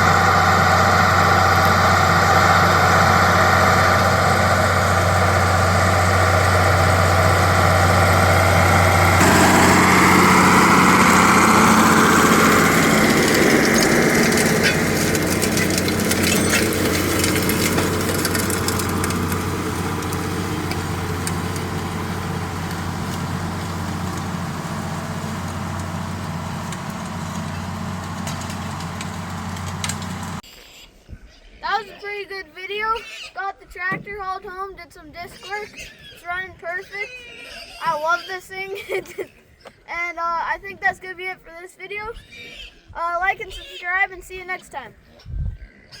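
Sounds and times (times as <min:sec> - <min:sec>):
tractor engine running: 0:00.0 - 0:30.4.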